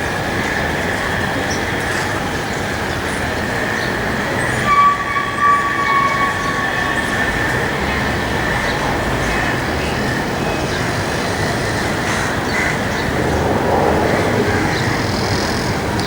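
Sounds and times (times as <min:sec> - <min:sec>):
jet engines whining: 0:04.2 - 0:16.0.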